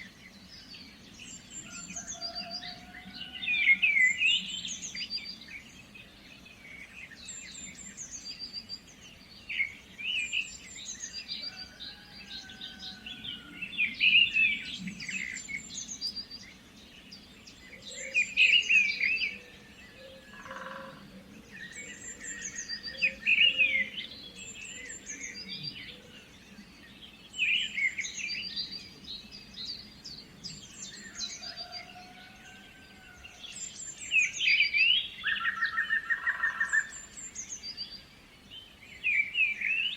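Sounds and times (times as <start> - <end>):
songbirds chirping and trilling: 0.0 - 39.9
faint steady hiss: 32.5 - 39.9.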